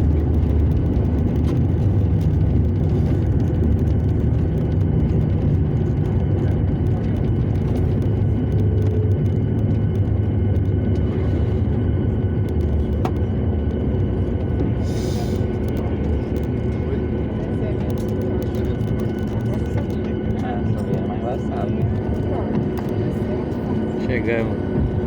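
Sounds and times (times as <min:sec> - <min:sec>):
jet engine cabin rumble: 0:00.0 - 0:25.0.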